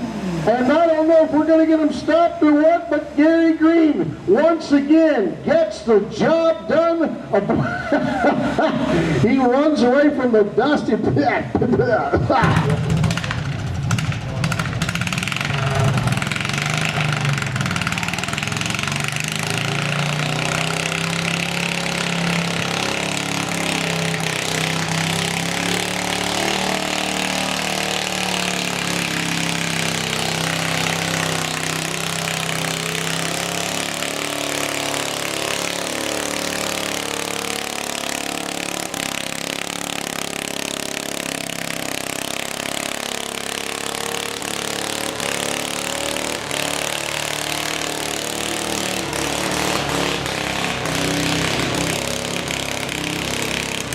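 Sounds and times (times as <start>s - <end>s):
lawn tractor engine running: 11.6s - 53.9s.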